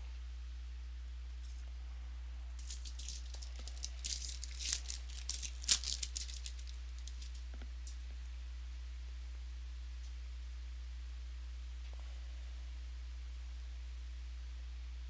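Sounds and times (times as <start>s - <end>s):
steady electrical hum: 0.0s - 15.0s
crinkling of card packaging: 2.6s - 8.0s.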